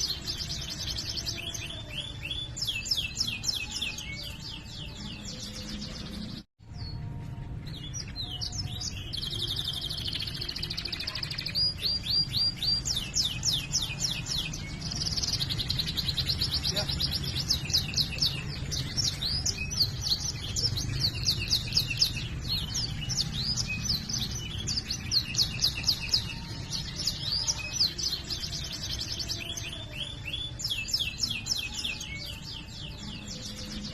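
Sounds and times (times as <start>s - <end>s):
canary singing trills: 7.6s - 33.9s.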